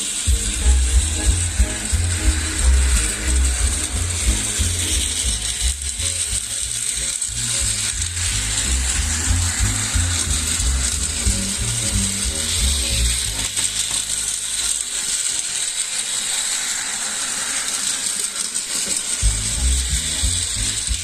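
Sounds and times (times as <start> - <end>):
mechanism clicking and whirring: 0.0 - 21.0
background music: 0.1 - 14.6.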